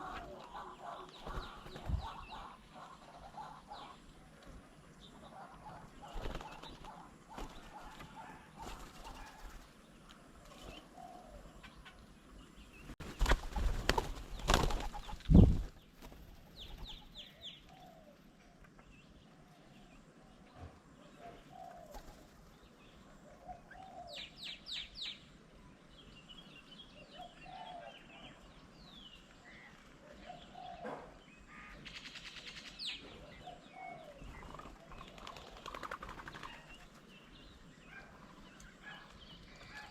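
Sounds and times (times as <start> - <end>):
low bird calls: 0.0 - 16.0
bird wing flaps: 1.0 - 2.4, 6.0 - 9.8, 13.0 - 17.1, 21.8 - 22.4, 34.3 - 37.1.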